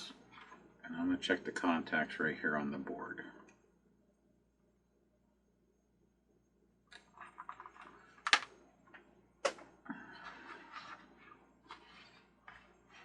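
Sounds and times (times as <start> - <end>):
plastic parts clicking and rattling: 6.9 - 8.5.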